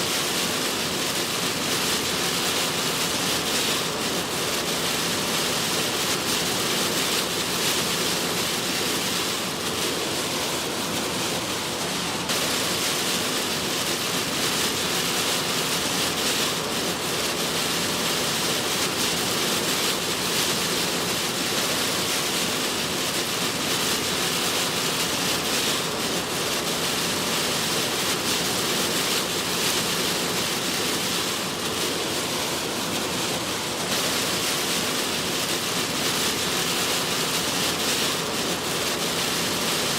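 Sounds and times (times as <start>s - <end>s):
heavy rain on car: 0.0s - 39.9s.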